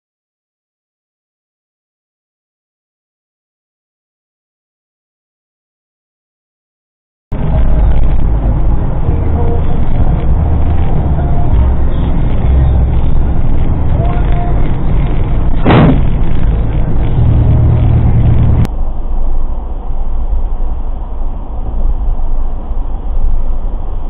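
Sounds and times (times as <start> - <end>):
vehicle road and engine rumble: 7.3 - 24.0
sudden loud bang: 15.5 - 16.5.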